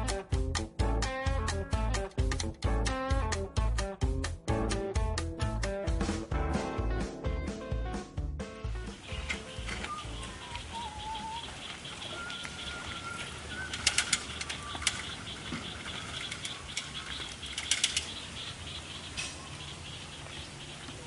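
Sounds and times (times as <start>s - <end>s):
wings flapping: 9.0s - 18.4s
birds whistling: 9.0s - 21.0s.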